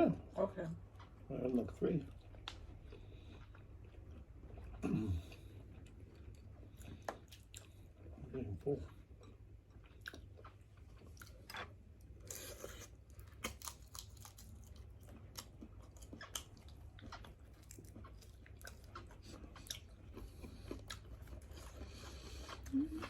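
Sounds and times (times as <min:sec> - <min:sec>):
low steady hum: 0:00.0 - 0:23.0
chewing and crunching: 0:00.1 - 0:23.0.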